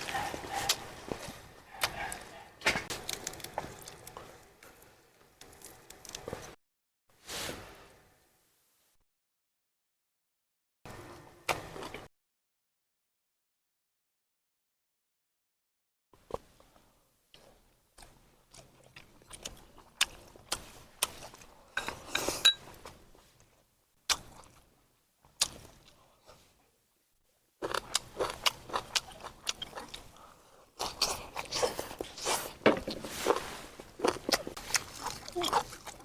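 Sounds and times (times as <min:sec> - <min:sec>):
person chewing and crunching: 0:00.0 - 0:06.6, 0:16.2 - 0:22.4, 0:24.1 - 0:24.7, 0:27.6 - 0:36.0.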